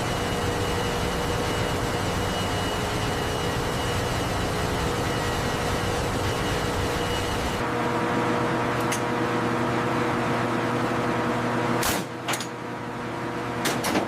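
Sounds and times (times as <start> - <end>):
faint steady tones: 0.0 - 7.6
low machinery hum: 0.0 - 14.0.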